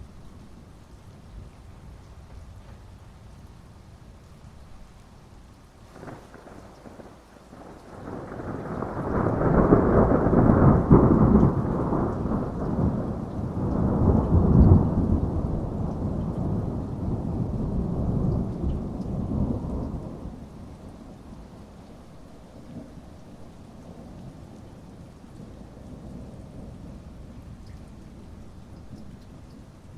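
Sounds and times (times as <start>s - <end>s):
heavy rain: 0.0s - 29.9s
thunder rolling: 6.0s - 20.4s.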